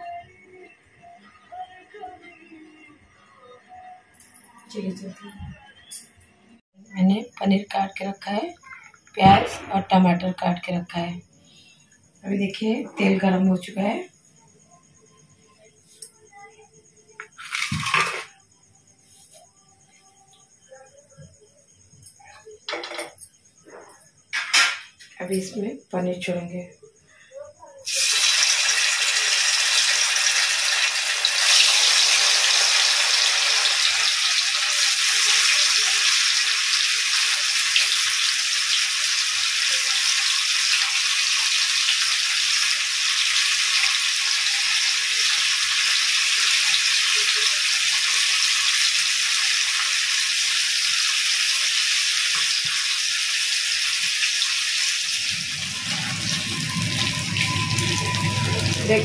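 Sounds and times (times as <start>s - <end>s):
paneer sizzling in oil: 27.8s - 59.0s.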